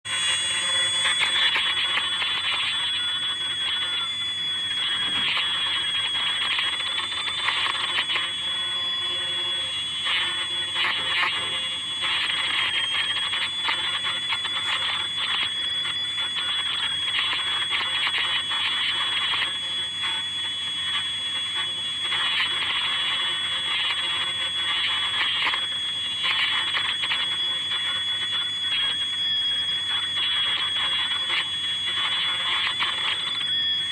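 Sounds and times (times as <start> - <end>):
ultrasonic machine whine: 0.0 - 33.9.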